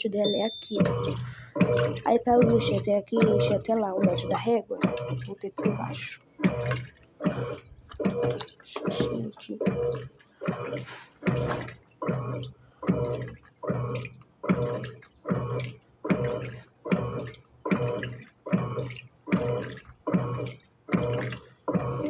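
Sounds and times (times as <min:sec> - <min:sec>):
low motor hum: 0:00.0 - 0:22.0
washing machine sloshing water: 0:00.0 - 0:22.0.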